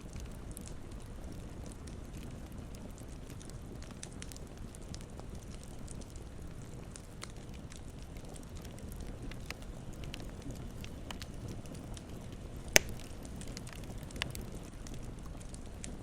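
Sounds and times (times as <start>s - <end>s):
campfire crackling: 0.0s - 16.0s
sharp pop from fire: 12.7s - 14.3s.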